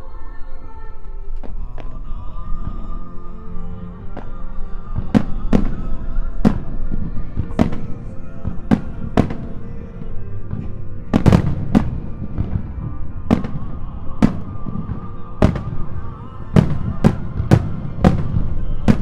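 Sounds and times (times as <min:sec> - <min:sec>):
music playing: 0:00.0 - 0:19.0
firework shells bursting: 0:10.6 - 0:19.0.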